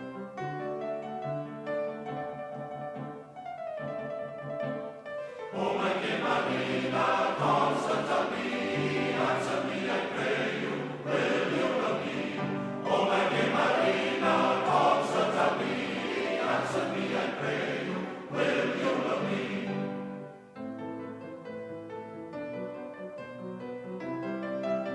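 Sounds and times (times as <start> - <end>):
choir singing: 5.4 - 20.4.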